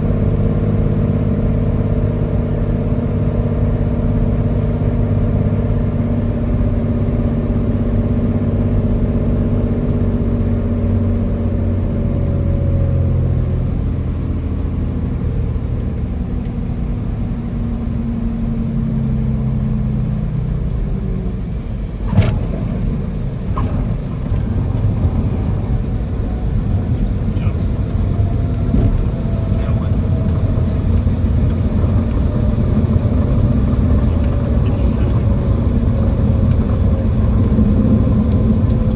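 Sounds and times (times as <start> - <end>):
airplane piston engine running: 22.0 - 38.9.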